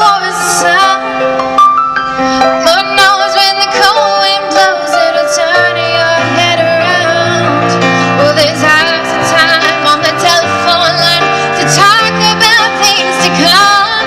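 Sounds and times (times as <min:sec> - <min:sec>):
woman singing with vibrato: 0:00.0 - 0:01.4, 0:02.3 - 0:14.0
held accompaniment notes: 0:00.6 - 0:10.9.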